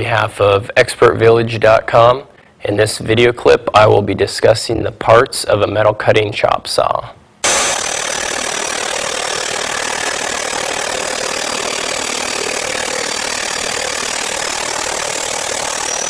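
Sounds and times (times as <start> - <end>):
abrasive chop saw running: 7.4 - 16.0.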